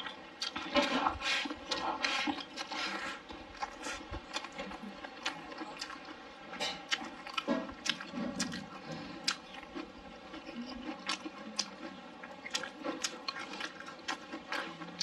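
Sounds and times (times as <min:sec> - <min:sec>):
person chewing with mouth smacks: 0:00.0 - 0:15.0.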